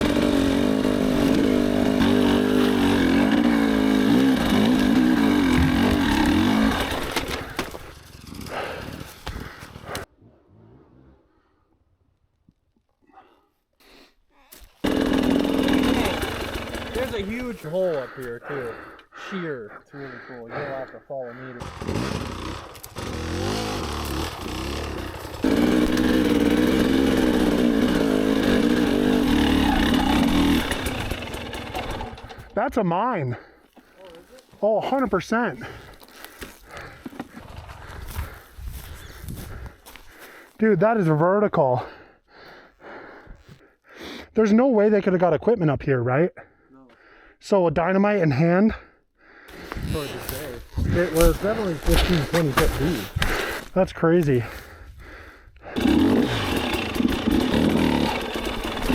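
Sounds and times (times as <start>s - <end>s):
dirt bike engine idling: 0.0s - 10.0s, 14.8s - 18.9s, 21.4s - 32.6s, 54.4s - 58.9s.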